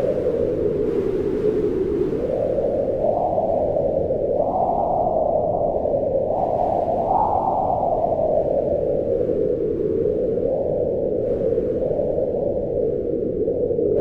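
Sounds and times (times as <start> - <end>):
howling wind: 0.0 - 14.0.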